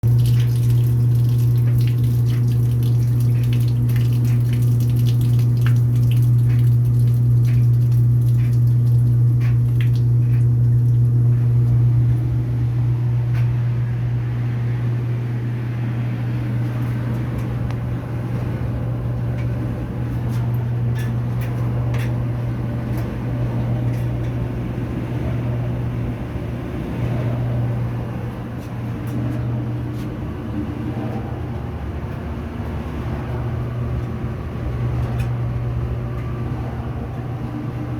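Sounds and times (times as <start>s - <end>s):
water splashing and dripping: 0.0s - 11.3s
drain pump humming: 0.0s - 37.9s.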